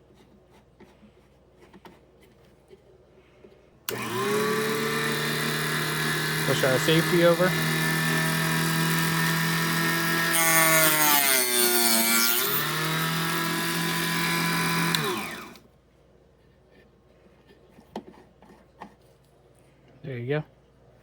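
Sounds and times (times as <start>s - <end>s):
saw blade cutting wood: 3.9s - 15.6s
small electric saw motor whining: 3.9s - 15.6s.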